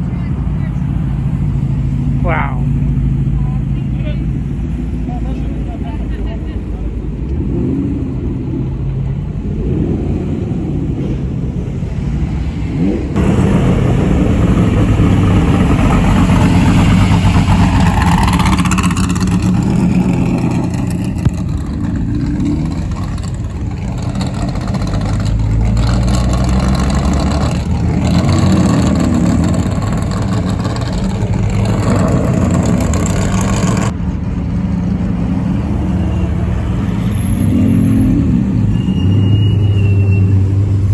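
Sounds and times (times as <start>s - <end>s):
car engines revving: 0.0s - 40.9s
broad rushing noise: 6.6s - 34.8s.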